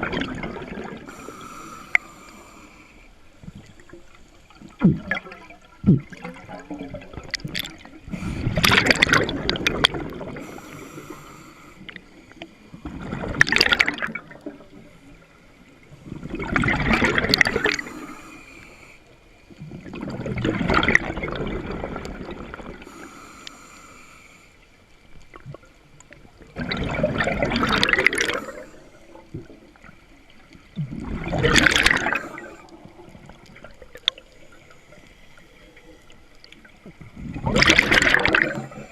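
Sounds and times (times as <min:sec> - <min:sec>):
diver breathing: 0:01.0 - 0:03.2, 0:10.3 - 0:12.4, 0:17.5 - 0:19.2, 0:22.8 - 0:24.6, 0:28.0 - 0:29.3, 0:31.8 - 0:32.9
air bubbling underwater: 0:08.4 - 0:10.4, 0:26.6 - 0:28.5, 0:30.8 - 0:32.4, 0:37.3 - 0:38.8.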